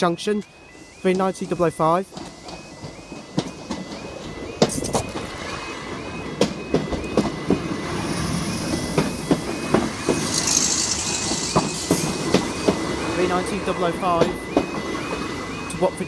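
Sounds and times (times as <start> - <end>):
crossing alarm rising tone: 0.0 - 16.0
train wheels clacking over rail joints: 6.3 - 15.2.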